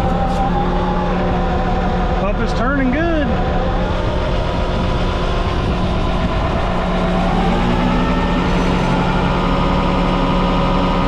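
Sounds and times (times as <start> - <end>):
diesel truck engine humming: 0.0 - 11.0.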